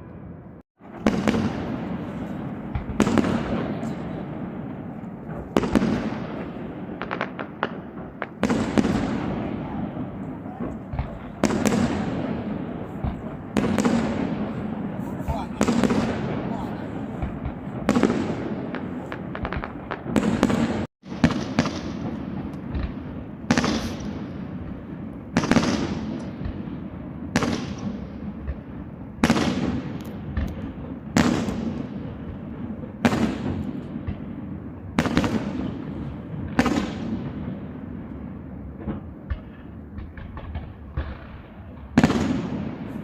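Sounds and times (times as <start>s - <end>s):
firework shells booming: 0.8s - 43.0s.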